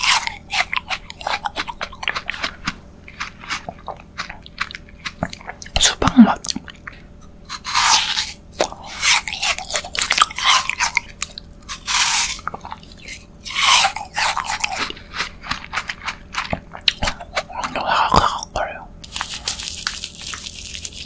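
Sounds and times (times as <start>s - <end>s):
crunchy icy bites and chewing: 0.0s - 6.9s, 7.5s - 21.0s.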